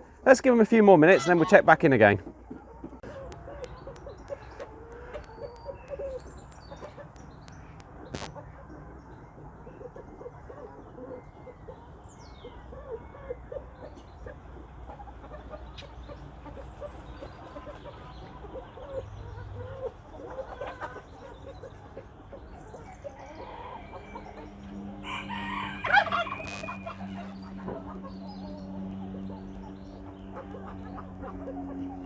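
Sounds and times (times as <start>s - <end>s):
chickens clucking: 0.0s - 32.0s
steady low hum: 2.6s - 17.4s, 21.7s - 32.0s
rooster crowing: 23.2s - 27.2s.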